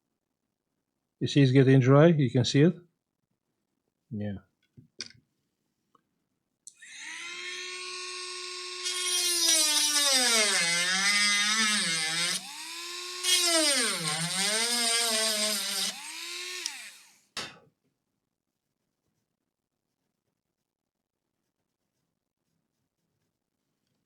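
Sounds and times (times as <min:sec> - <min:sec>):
small electric motor whining: 0:06.8 - 0:17.3.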